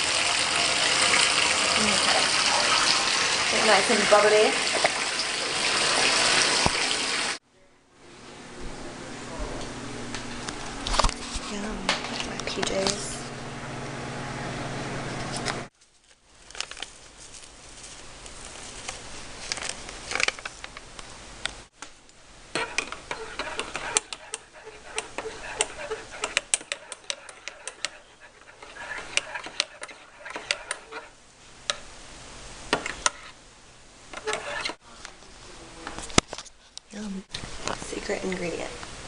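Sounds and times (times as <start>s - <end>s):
household objects clicking and tapping: 22.6s - 31.0s.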